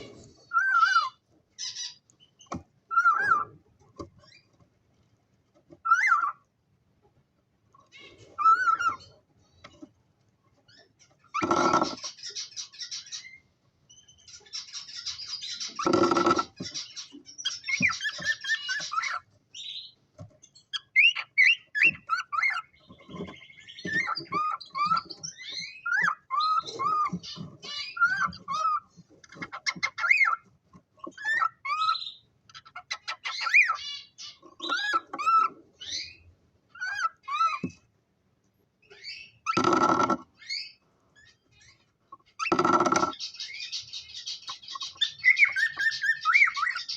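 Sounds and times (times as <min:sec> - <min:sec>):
cockatiels screeching: 0:00.1 - 0:03.6, 0:05.8 - 0:06.4, 0:07.9 - 0:09.2, 0:10.8 - 0:13.4, 0:14.2 - 0:19.9, 0:20.8 - 0:37.7, 0:42.2 - 0:46.9.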